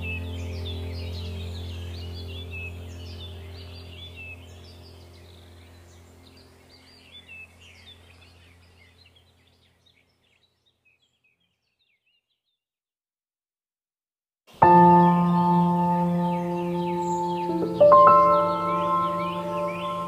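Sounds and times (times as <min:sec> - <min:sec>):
low hum: 0:00.0 - 0:09.4
birds chirping and singing: 0:00.0 - 0:12.6, 0:14.6 - 0:20.0.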